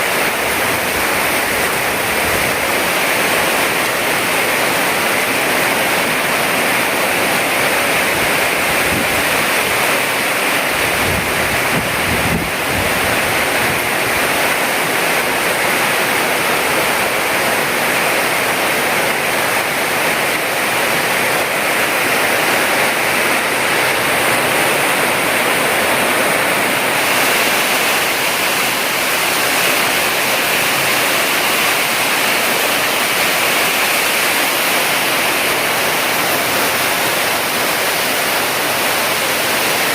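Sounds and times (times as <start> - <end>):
heavy rain pouring: 0.0 - 39.9
wind buffeting microphone: 10.8 - 13.9.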